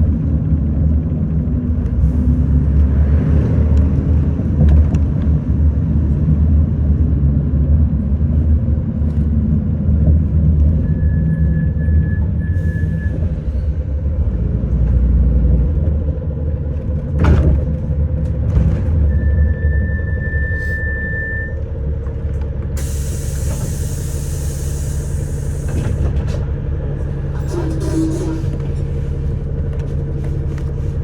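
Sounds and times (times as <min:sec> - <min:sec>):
bus engine and road rumble: 0:00.0 - 0:31.0
thin high tone dashes: 0:19.2 - 0:21.6.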